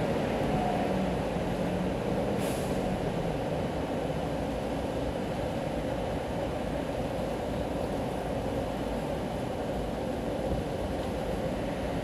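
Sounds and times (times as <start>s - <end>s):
steady rain: 0.0s - 12.0s
tyres hissing on wet road: 0.0s - 12.0s
short hiss: 2.4s - 2.9s.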